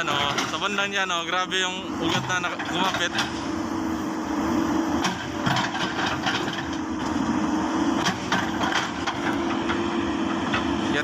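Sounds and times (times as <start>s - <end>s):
bulldozer diesel engine under load: 0.0s - 11.0s.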